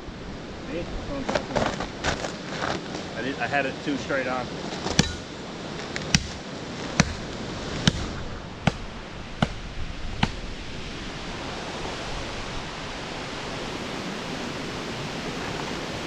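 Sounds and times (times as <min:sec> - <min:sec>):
strong wind gusting through trees: 0:00.0 - 0:16.0
shovel chopping into tree trunk: 0:04.8 - 0:05.3, 0:06.0 - 0:09.6.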